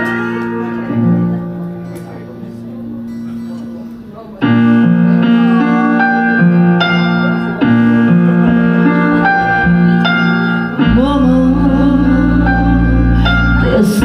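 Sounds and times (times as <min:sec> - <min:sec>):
piano chords on keyboard: 0:00.0 - 0:14.0
deep bass: 0:06.4 - 0:14.0.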